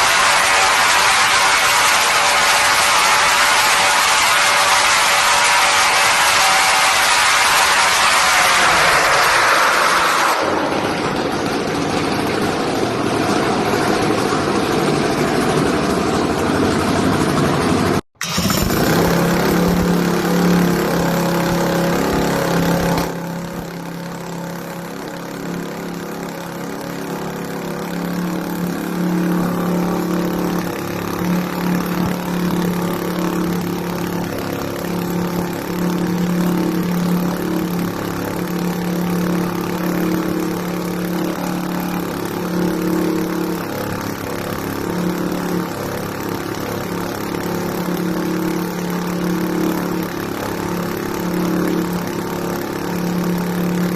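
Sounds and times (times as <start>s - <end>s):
small engine droning: 0.0s - 53.9s.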